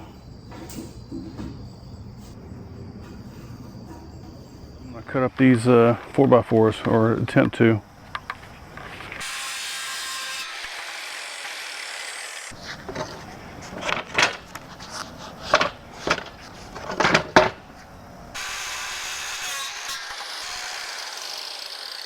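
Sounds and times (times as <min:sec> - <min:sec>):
wooden knocks and clunks: 0:00.5 - 0:01.8.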